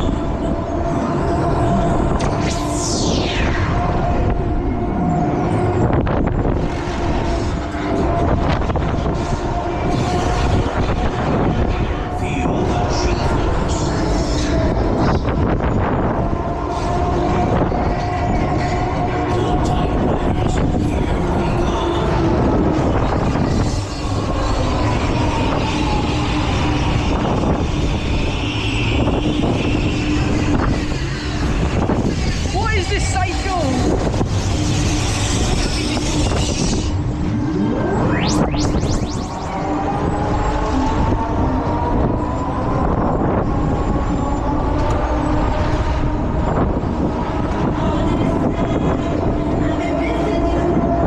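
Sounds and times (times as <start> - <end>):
thrill ride mechanical drone: 0.0 - 51.0
whine sliding down in pitch: 0.0 - 51.0.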